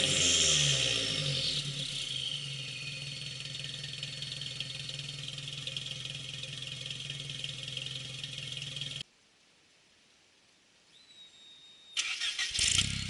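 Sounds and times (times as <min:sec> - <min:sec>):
car engine idling: 0:00.0 - 0:09.0.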